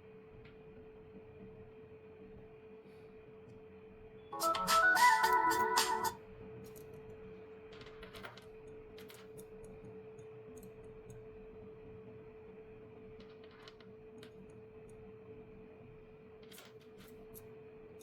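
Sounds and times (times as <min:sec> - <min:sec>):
loud burst of music: 0:04.4 - 0:06.1.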